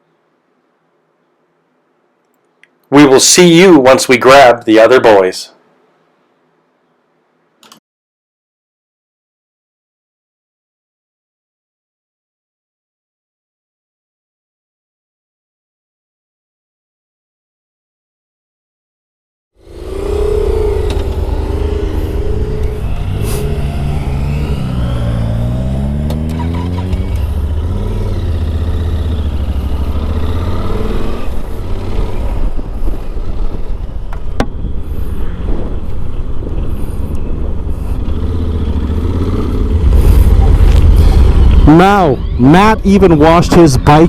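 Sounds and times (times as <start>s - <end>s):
motorcycle engine running: 19.6s - 42.5s
road and wind noise: 19.6s - 44.0s.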